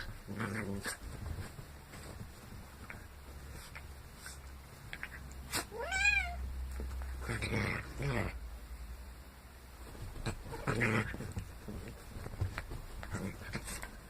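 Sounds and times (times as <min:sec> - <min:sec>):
cat meowing: 0:05.7 - 0:06.4
harsh cat cries: 0:05.7 - 0:06.4.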